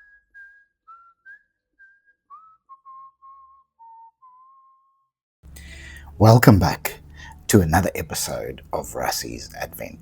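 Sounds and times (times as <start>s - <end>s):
person whistling a tune: 0.0s - 5.0s.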